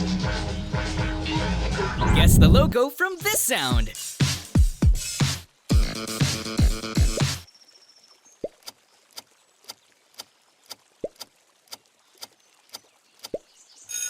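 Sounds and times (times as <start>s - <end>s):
countdown timer ticking: 2.0s - 5.0s.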